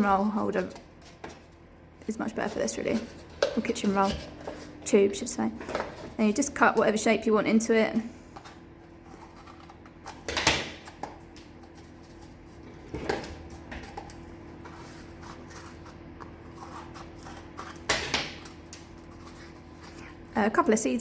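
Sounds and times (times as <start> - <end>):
scissors cutting cardboard tube: 14.0 - 19.4.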